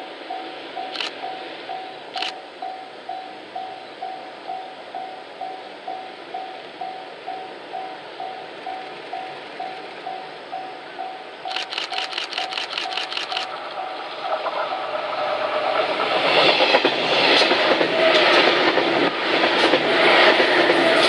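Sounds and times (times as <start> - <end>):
train passing: 0.0 - 21.0
level-crossing bell dinging: 0.3 - 12.2, 13.0 - 15.4.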